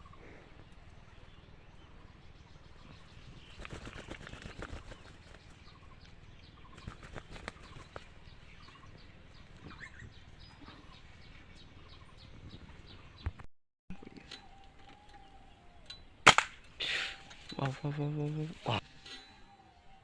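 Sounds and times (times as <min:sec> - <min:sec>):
small birds chirping: 0:00.0 - 0:20.0
dove wings flapping: 0:02.8 - 0:05.9, 0:06.6 - 0:08.3.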